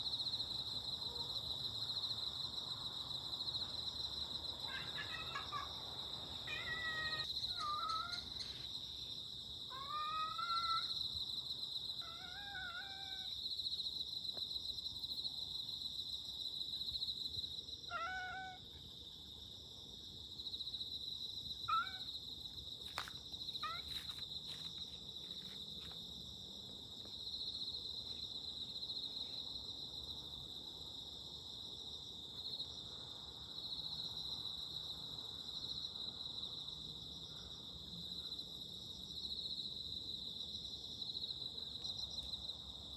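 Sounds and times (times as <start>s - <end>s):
insects chirring: 0.0s - 42.9s
cat meowing: 4.7s - 5.7s, 6.4s - 8.3s, 9.7s - 11.0s, 12.0s - 13.3s, 17.9s - 18.6s, 21.6s - 22.1s, 23.6s - 24.1s.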